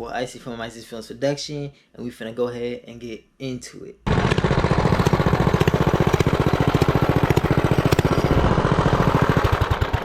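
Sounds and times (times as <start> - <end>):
small motorbike engine putter: 4.2 - 10.0.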